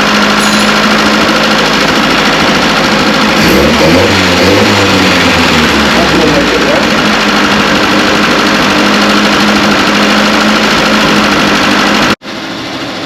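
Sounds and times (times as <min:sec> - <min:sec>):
petrol engine running steadily: 0:00.0 - 0:13.0.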